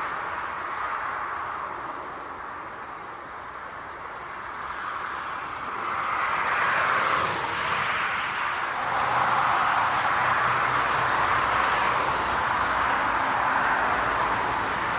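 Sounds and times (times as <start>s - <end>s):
jet engines passing by: 0.0s - 14.9s.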